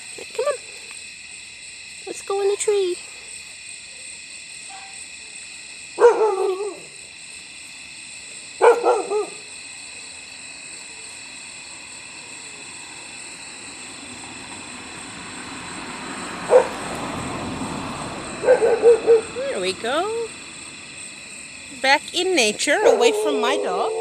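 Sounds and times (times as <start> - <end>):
crickets chirping: 0.0 - 24.0
dog yelping barks: 6.0 - 6.9, 8.6 - 9.4, 16.5 - 16.8, 18.4 - 19.4, 22.7 - 24.0.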